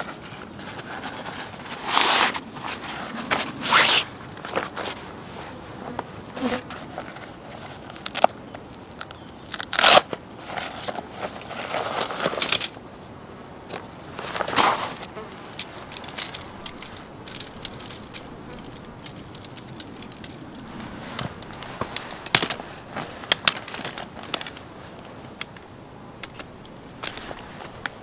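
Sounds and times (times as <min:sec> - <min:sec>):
small hard objects clicking: 0:15.3 - 0:22.6.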